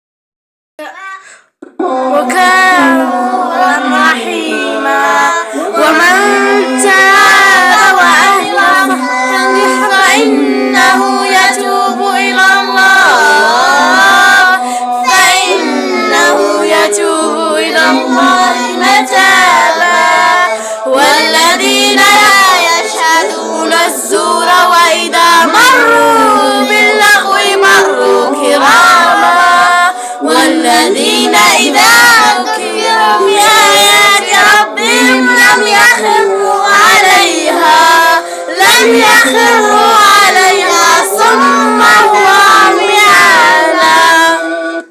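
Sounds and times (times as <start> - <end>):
young voices singing together: 0.8 - 44.9.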